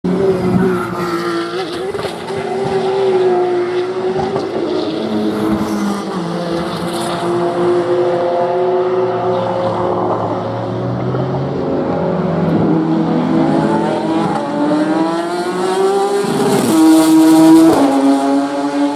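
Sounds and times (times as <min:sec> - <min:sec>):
race car engine: 0:00.1 - 0:18.9.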